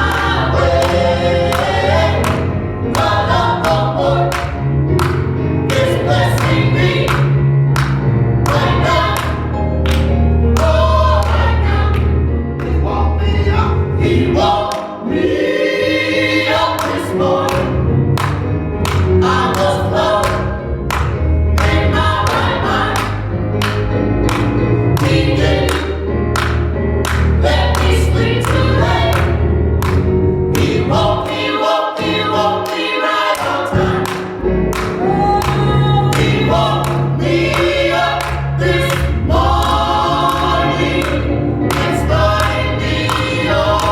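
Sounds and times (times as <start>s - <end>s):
choir singing gospel song: 0.0s - 43.9s.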